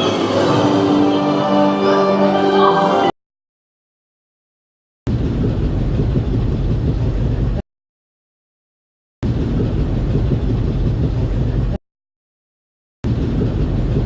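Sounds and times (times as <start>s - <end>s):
ride vehicle low rumble: 5.1s - 7.6s, 9.2s - 11.8s.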